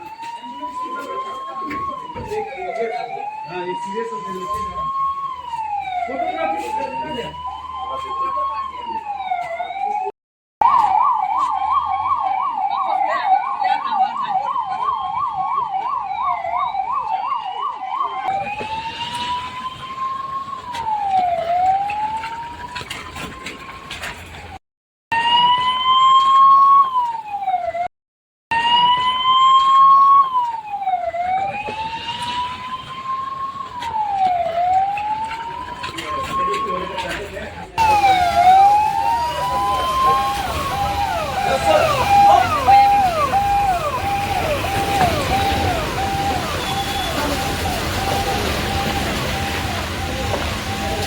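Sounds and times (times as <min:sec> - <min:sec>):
emergency vehicle siren: 0:00.0 - 0:27.9, 0:28.5 - 0:51.0.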